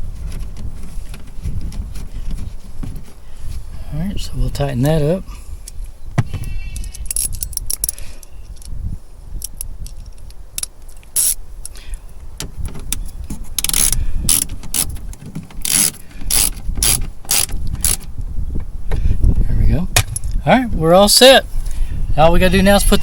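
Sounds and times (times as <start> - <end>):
hand ratchet clicking: 13.6 - 18.1.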